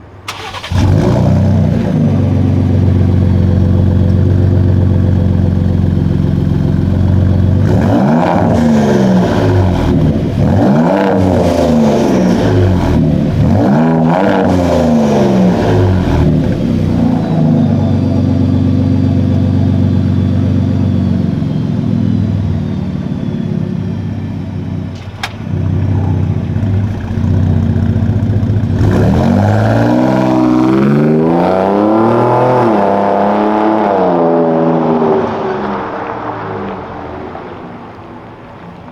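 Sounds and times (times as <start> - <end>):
engine revving: 0.0 - 38.0
car engine starting and idling: 0.0 - 38.9.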